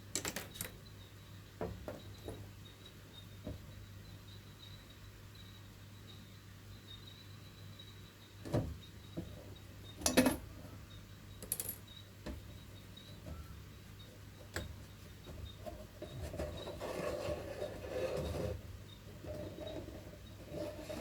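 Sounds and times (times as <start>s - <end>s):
rustling scrape: 16.0s - 18.6s, 19.2s - 21.0s.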